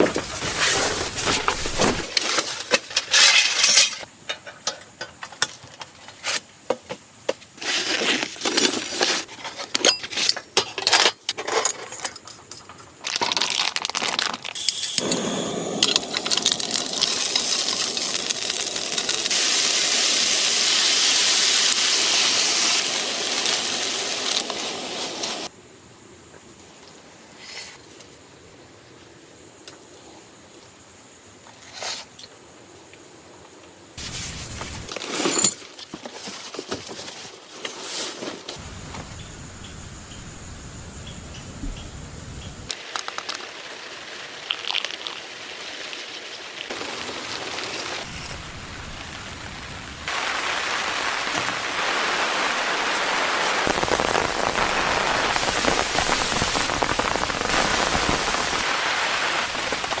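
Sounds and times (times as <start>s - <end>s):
rain falling: 15.0s - 25.5s, 38.6s - 60.0s.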